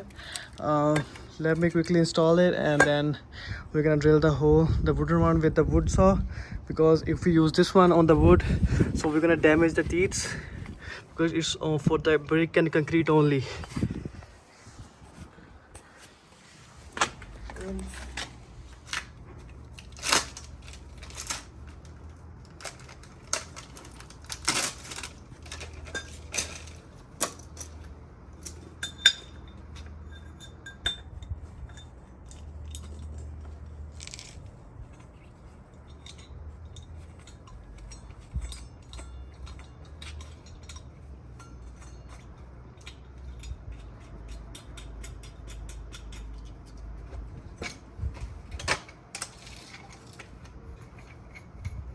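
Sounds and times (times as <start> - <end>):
low steady hum: 0.0 - 51.9
metallic clinks and knocks: 19.2 - 51.9.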